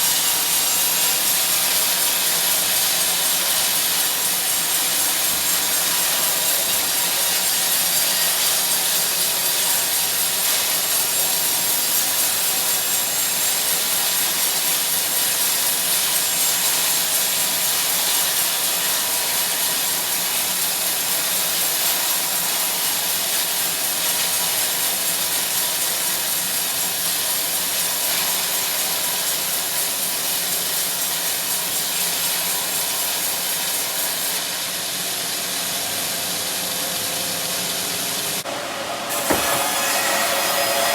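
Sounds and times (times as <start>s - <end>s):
band saw cutting wood: 38.2s - 40.9s.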